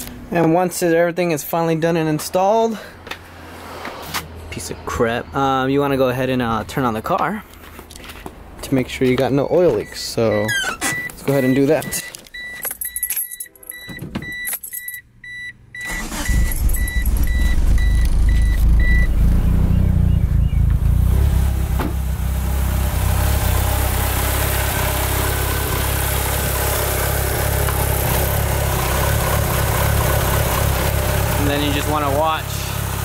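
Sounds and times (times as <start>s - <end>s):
car warning chime beeping: 9.4s - 19.2s
car engine starting and idling: 14.2s - 33.0s.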